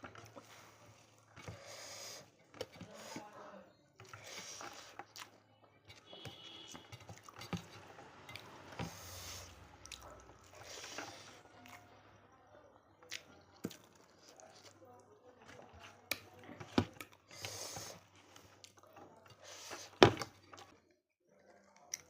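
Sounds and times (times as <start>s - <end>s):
person chewing with wet mouth noises: 4.0s - 5.4s, 6.1s - 11.9s, 13.0s - 14.8s.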